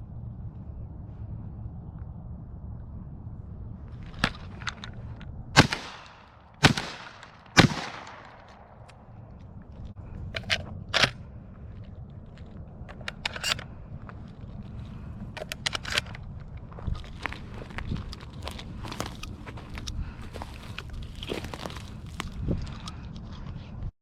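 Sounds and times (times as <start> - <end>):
shotgun shots with echo: 5.6 - 8.9.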